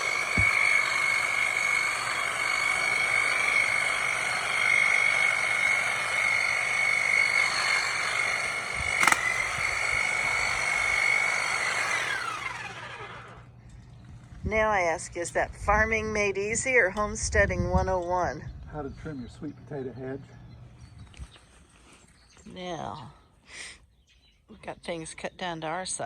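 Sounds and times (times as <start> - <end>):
electric trimmer buzzing: 0.0 - 13.5
sharp click: 9.0 - 9.6.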